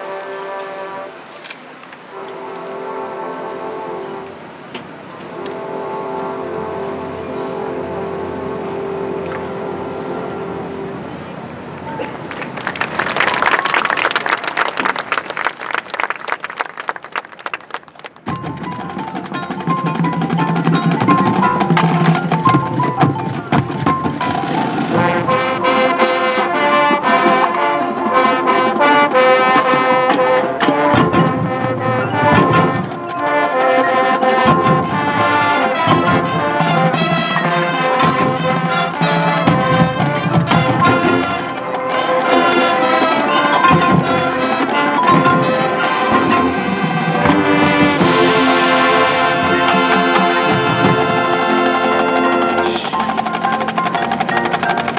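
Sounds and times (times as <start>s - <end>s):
marching band brass: 0.0s - 54.9s
drumline percussion: 11.8s - 54.9s.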